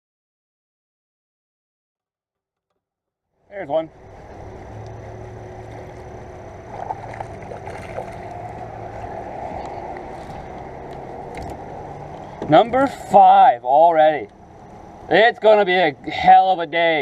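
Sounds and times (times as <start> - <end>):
water rushing around kayak: 3.7 - 13.2.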